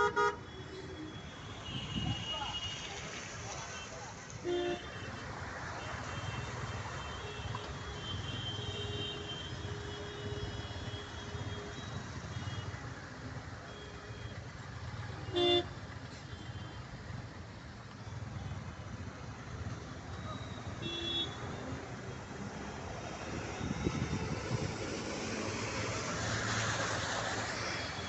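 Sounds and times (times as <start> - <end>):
vehicle horn toot: 0.0 - 0.4, 20.8 - 21.4.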